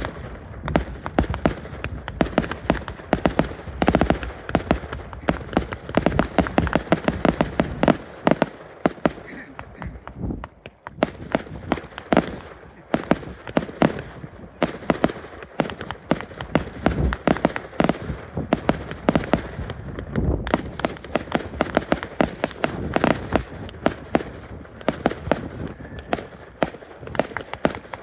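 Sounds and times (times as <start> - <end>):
deep fireworks booms: 0.0 - 28.0
fireworks crackling bangs: 0.0 - 28.0
continuous rumble: 8.9 - 28.0.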